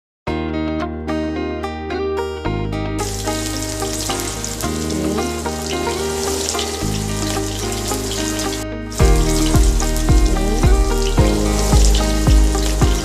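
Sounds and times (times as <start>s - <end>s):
background music: 0.3s - 13.0s
food sizzling in hot oil: 3.0s - 13.0s.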